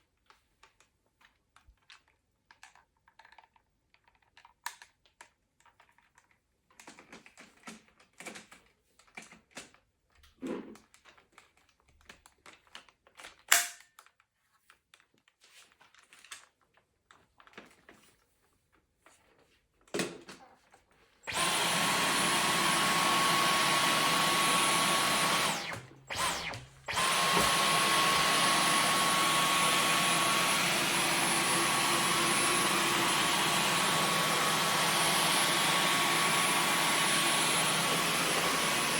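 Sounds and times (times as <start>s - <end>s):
cordless vacuum running: 21.2s - 38.9s.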